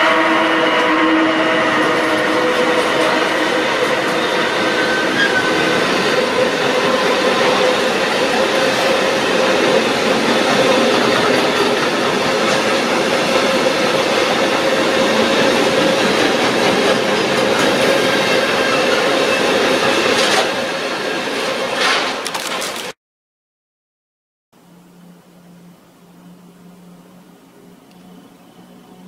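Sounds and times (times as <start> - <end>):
train wheels on rails: 0.0 - 23.0.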